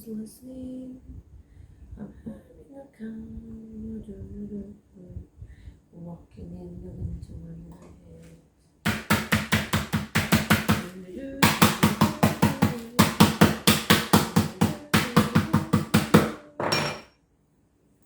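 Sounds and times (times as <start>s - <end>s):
meat beater pounding on board: 8.9s - 16.4s.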